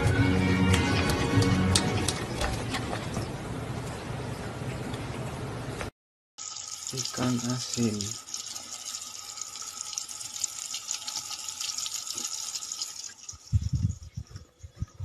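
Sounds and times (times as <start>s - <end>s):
running water hiss: 6.4s - 13.8s.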